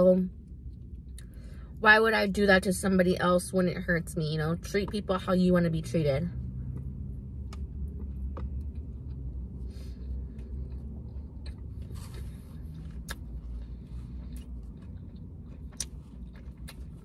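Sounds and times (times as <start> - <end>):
steady low rumble: 0.0 - 17.0
chewing with wet clicks: 6.7 - 9.6, 10.2 - 17.0.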